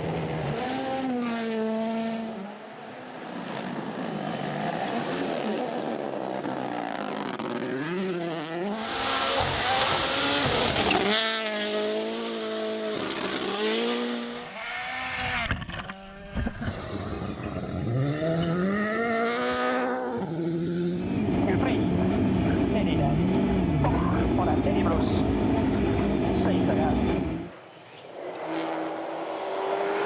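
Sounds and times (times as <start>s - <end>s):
rally car engines revving: 0.0s - 30.0s.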